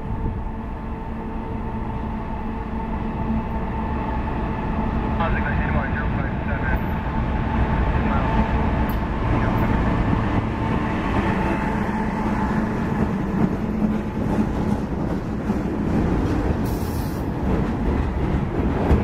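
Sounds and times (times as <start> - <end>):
diesel locomotive engines: 0.0 - 19.0.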